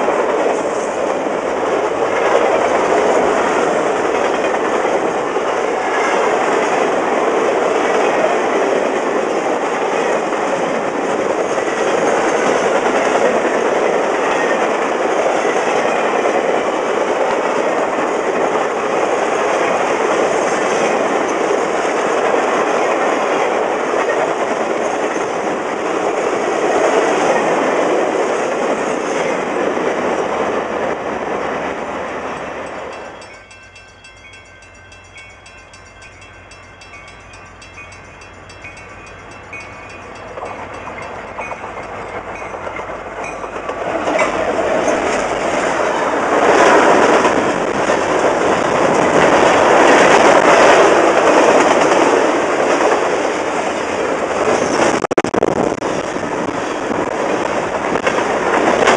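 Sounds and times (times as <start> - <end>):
freight train wheels clattering: 0.0 - 55.1
train rumbling past: 0.0 - 58.9
faint steady high tones: 32.2 - 43.7.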